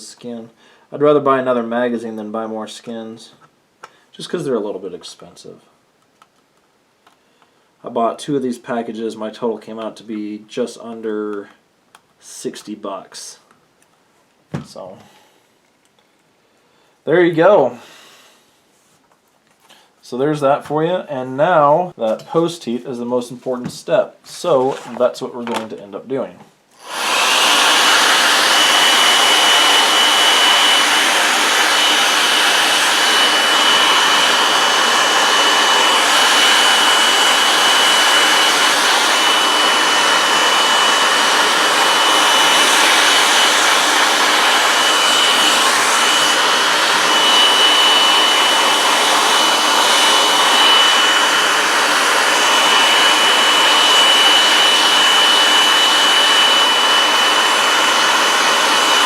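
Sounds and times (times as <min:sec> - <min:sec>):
hot-air blower running: 0:17.7 - 0:18.4, 0:26.8 - 0:59.0.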